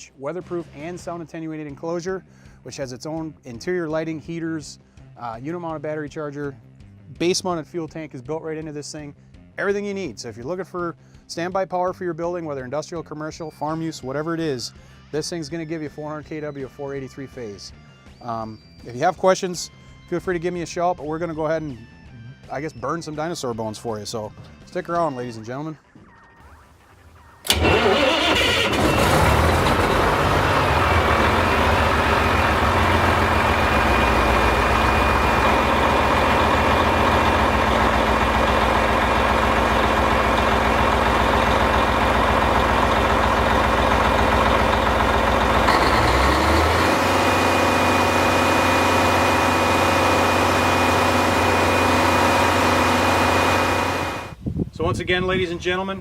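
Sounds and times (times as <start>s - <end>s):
diesel generator engine running: 27.4s - 54.4s.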